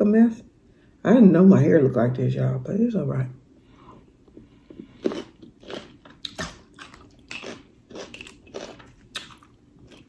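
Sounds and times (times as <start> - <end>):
person chewing and smacking: 4.3 - 10.0.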